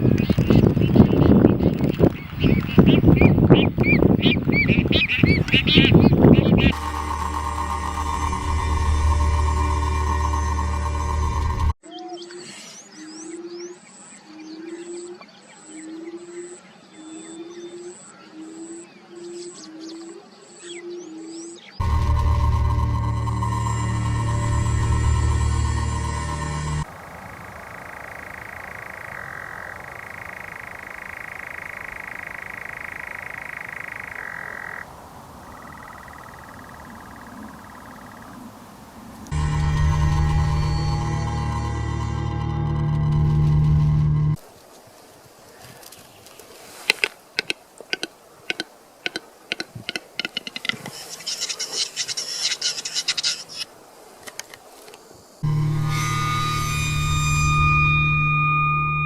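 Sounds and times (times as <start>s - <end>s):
bird croaking call: 0.0s - 10.3s, 26.8s - 39.4s, 46.9s - 53.7s
music with held tones: 6.4s - 11.8s, 21.8s - 26.9s, 39.3s - 44.4s, 55.4s - 59.0s.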